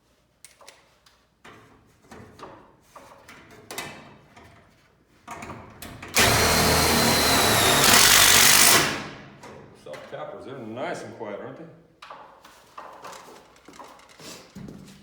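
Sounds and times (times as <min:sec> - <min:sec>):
power driver drilling screw: 0:06.2 - 0:09.2.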